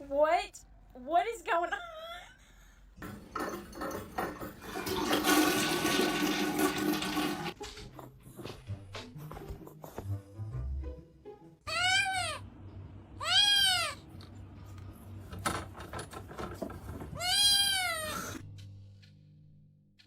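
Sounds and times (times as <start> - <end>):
cat meowing: 11.7 - 12.4, 13.2 - 14.0, 17.2 - 18.4.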